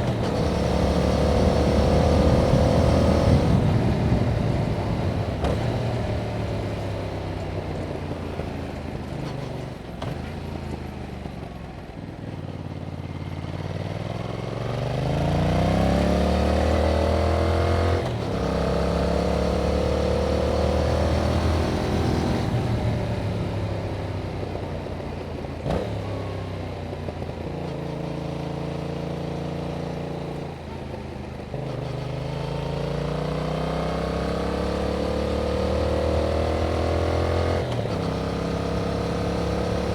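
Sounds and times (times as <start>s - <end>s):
motorcycle engine revving: 0.0s - 10.4s, 12.8s - 39.9s.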